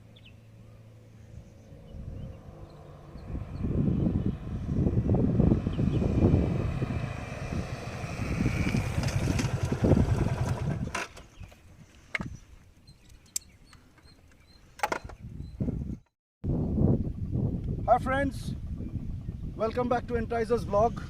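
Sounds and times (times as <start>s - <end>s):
motorcycle engines running: 0.0s - 11.6s, 17.0s - 20.9s.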